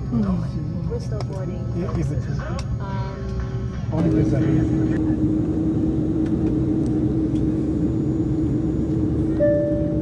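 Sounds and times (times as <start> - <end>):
airliner cabin hum: 3.0 - 10.0.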